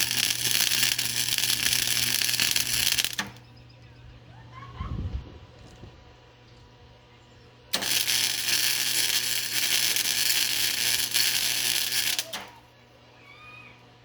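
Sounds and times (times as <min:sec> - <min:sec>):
welding arc sizzling and crackling: 0:00.0 - 0:03.4, 0:07.7 - 0:12.7
steady low hum: 0:00.0 - 0:14.0.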